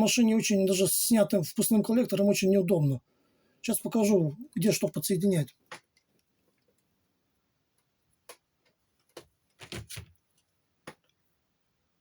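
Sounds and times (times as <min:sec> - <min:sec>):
faint handling clicks and knocks: 0:05.5 - 0:06.9, 0:07.7 - 0:11.2.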